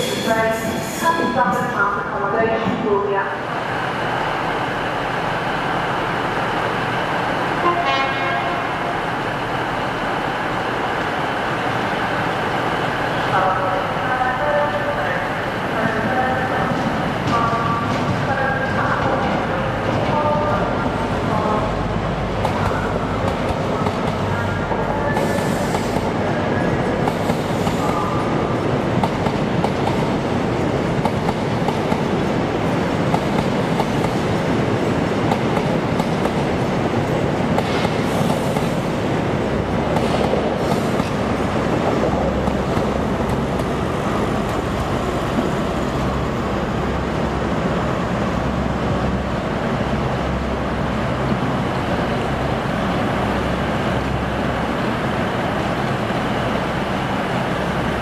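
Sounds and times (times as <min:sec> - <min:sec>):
train coaches clickety-clack: 0:15.8 - 0:21.6, 0:22.3 - 0:46.2.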